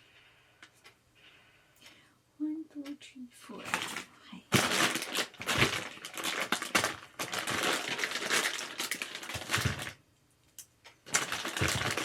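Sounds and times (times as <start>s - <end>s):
packaging rustling: 3.6s - 10.0s, 11.0s - 12.0s.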